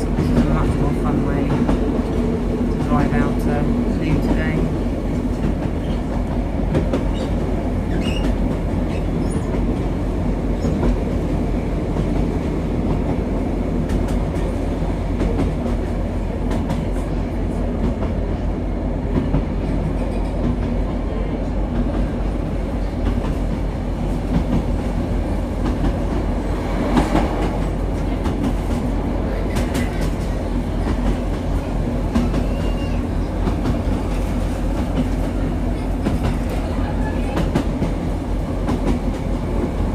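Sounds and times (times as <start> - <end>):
rail clicks: 0.0 - 10.0, 21.7 - 39.9
train clatter: 0.0 - 39.9
train engine and wheels rumbling: 0.0 - 39.9.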